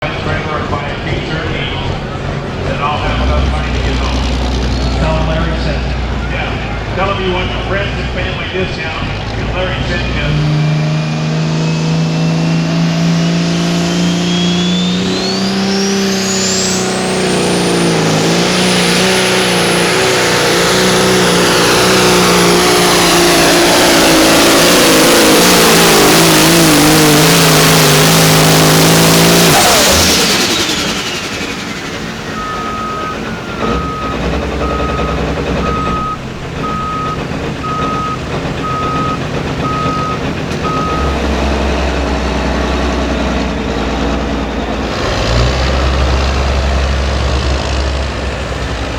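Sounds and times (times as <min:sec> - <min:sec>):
diesel engine running hard: 0:00.0 - 0:48.9
reversing beeper: 0:11.4 - 0:46.1
turbo whine: 0:12.8 - 0:44.8.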